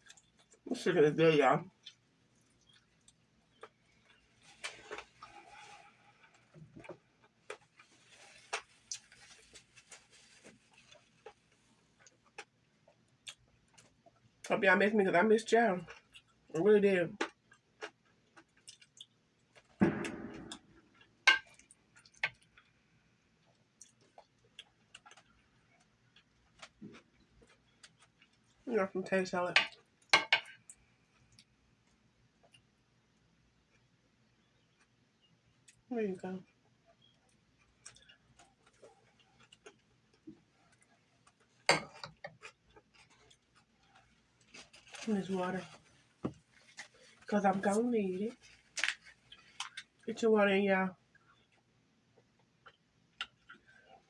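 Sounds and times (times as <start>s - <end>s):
crackly burst: 19.8s - 21.2s
tableware clicks and taps: 29.6s - 30.5s.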